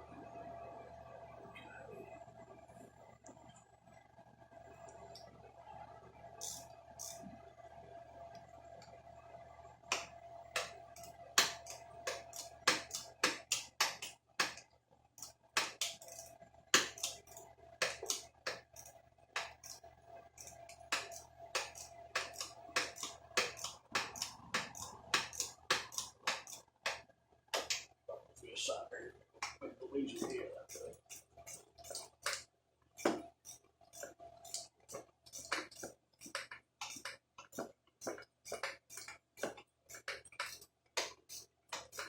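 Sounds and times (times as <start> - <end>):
faint steady hum: 0.0 - 42.0
metallic clicks and taps of tools: 6.4 - 7.2, 15.2 - 27.9, 33.0 - 42.0.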